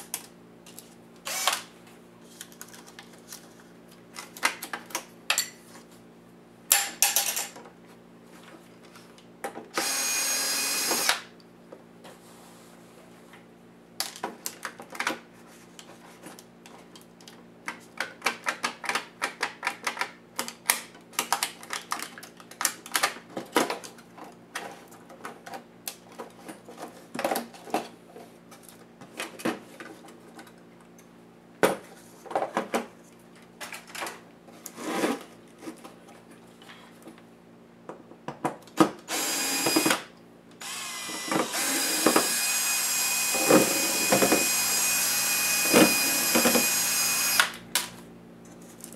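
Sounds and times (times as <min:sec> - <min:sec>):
small power tool running: 0:01.3 - 0:01.6, 0:09.8 - 0:11.3, 0:39.1 - 0:40.0, 0:40.6 - 0:47.6.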